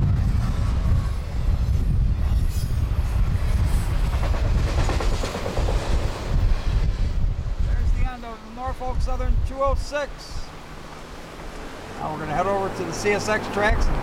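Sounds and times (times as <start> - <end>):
freight train rumbling past: 0.0 - 14.0
train cars clattering: 3.6 - 6.3.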